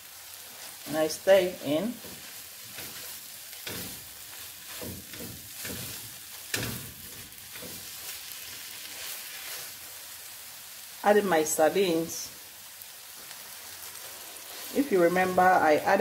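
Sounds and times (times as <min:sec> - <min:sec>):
sauce sizzling in frying pan: 0:00.0 - 0:16.0
utensil scraping and knocking pan: 0:02.0 - 0:08.0.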